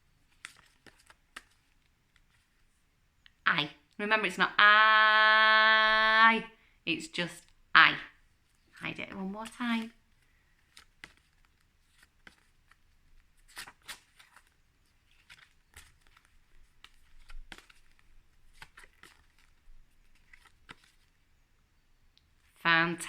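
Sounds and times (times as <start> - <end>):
paper flashcards shuffled: 0.2 - 2.7, 8.5 - 21.2.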